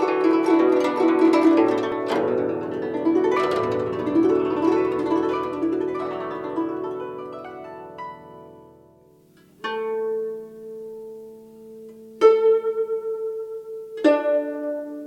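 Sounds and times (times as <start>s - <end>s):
plucked zither notes: 0.0s - 15.0s.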